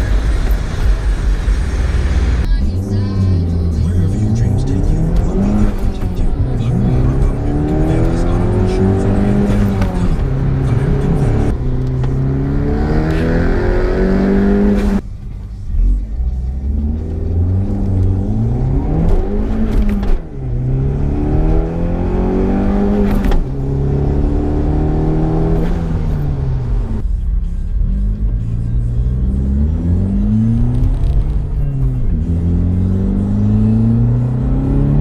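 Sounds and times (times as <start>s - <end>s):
car engine revving under boost: 3.6s - 15.0s, 16.7s - 27.0s.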